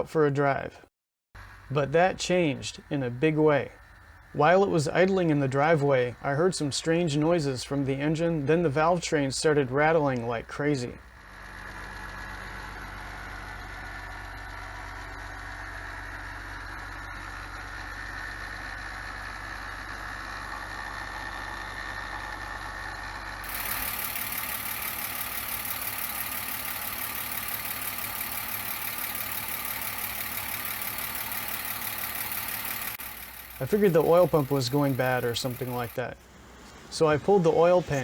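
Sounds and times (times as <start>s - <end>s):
car engine idling: 1.4s - 36.8s
valve train rattle: 11.0s - 36.0s.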